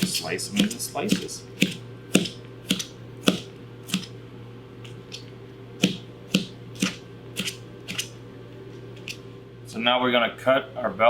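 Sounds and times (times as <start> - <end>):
knife knocking on cutting board: 5.8 - 6.6.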